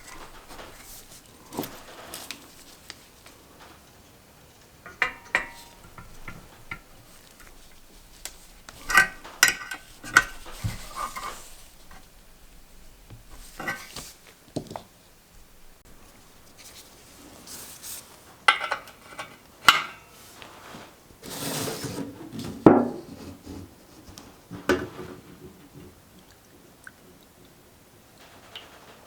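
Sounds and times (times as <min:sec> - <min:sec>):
metal parts clinking and knocking: 0:04.8 - 0:11.5.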